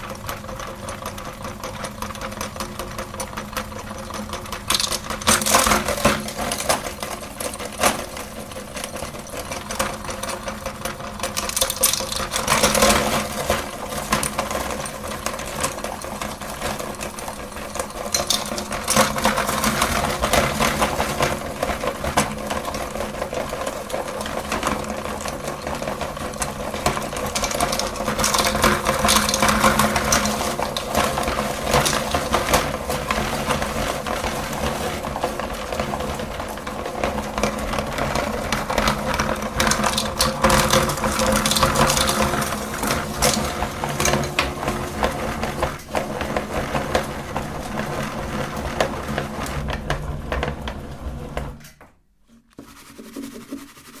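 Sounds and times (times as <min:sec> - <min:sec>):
meat grinder motor hum: 0:00.0 - 0:51.8
candy crackling and crunching: 0:11.4 - 0:20.8.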